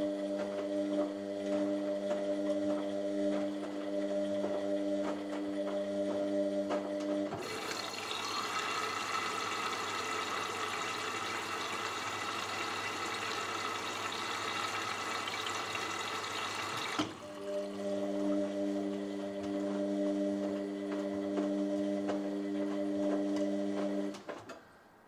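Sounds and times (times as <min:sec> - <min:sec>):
water rushing into washing machine: 0:07.3 - 0:18.5.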